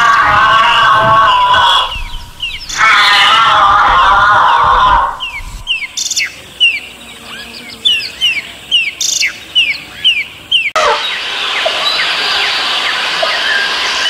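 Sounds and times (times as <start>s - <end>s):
steady rushing noise: 0.0s - 6.0s, 11.0s - 14.0s
bird chirping: 0.0s - 13.8s.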